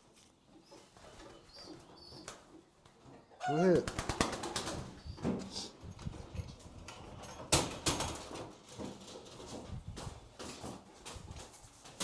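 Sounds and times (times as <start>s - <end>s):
pigeon wings flapping: 3.8s - 5.0s.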